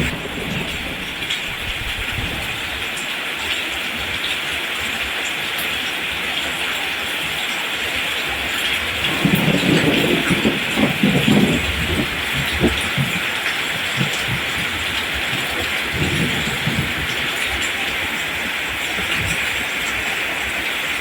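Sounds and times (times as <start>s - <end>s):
thunder rumbling: 0.0s - 3.0s, 8.4s - 21.0s
steady rain: 0.0s - 21.0s.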